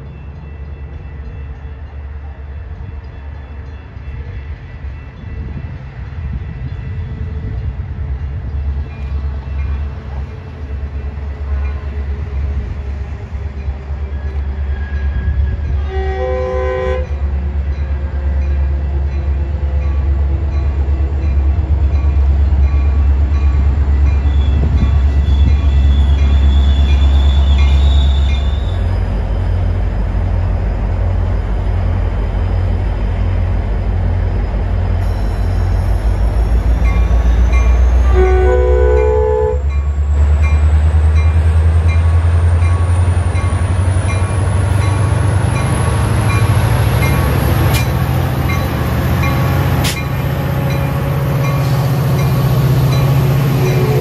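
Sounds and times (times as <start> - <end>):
diesel train engine rumble: 0.0 - 54.0
train horn blast: 15.0 - 17.2, 37.7 - 39.7, 53.0 - 54.0.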